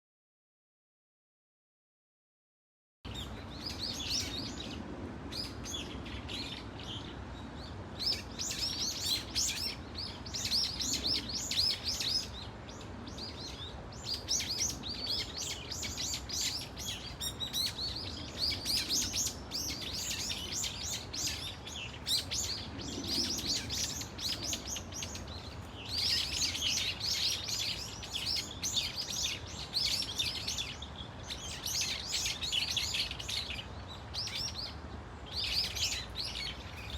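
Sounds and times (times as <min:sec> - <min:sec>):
birds calling shrilly: 0:14.0 - 0:36.9.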